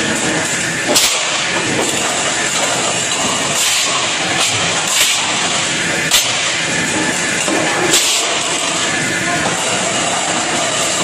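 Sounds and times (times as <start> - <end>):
dishwashing station hiss: 7.8 - 8.9.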